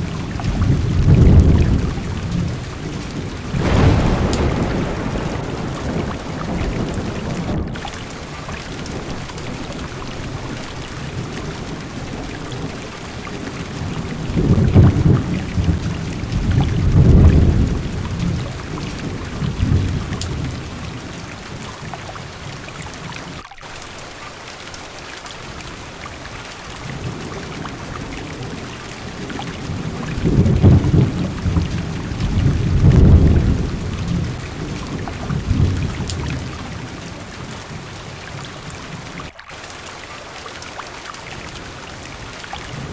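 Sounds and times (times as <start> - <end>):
heavy rain on car roof: 0.0 - 42.9
thunder rolling: 0.3 - 21.0, 29.1 - 36.8.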